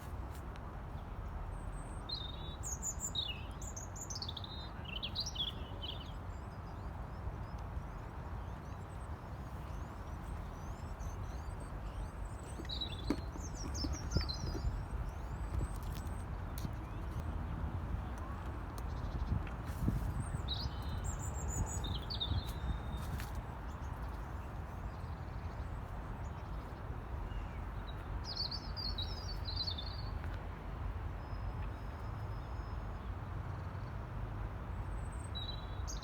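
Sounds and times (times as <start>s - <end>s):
birds chirping: 2.2s - 30.2s.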